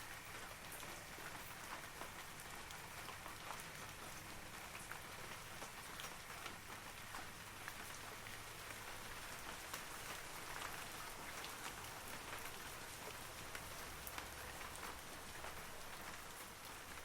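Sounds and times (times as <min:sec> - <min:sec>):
rain hissing on trees: 0:00.0 - 0:17.0.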